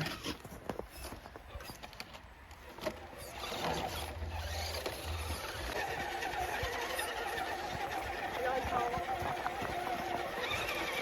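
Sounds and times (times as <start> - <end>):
small electric motors whining: 2.7 - 11.0.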